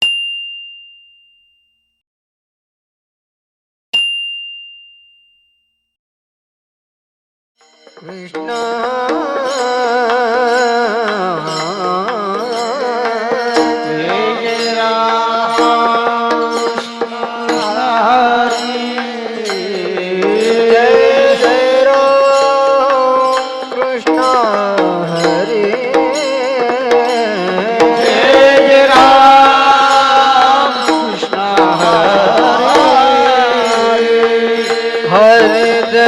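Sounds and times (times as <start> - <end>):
percussion strokes: 7.6 - 36.0
wavering melodic line: 7.6 - 36.0.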